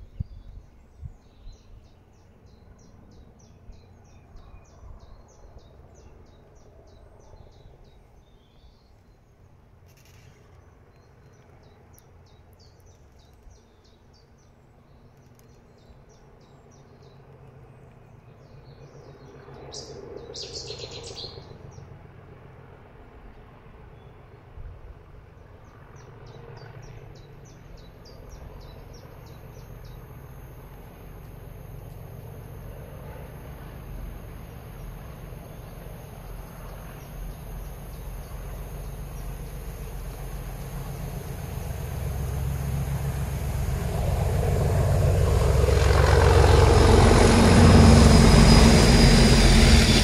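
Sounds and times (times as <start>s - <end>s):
small birds chirping: 9.9s - 21.5s, 34.7s - 43.8s
low outdoor rumble: 28.2s - 50.0s.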